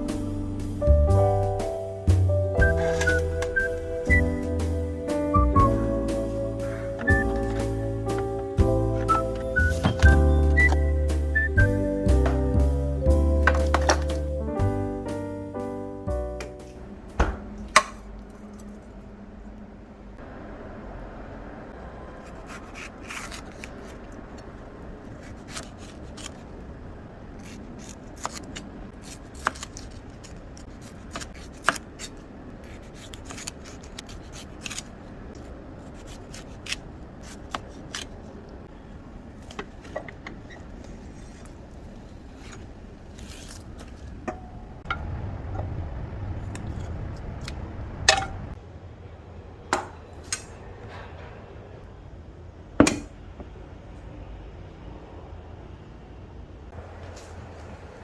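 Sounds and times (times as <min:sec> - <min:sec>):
low hum: 0:00.0 - 0:22.9, 0:41.1 - 0:58.0.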